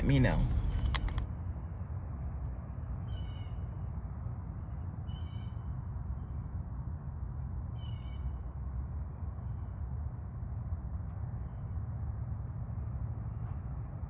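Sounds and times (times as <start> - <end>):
low background rumble: 0.0 - 1.2.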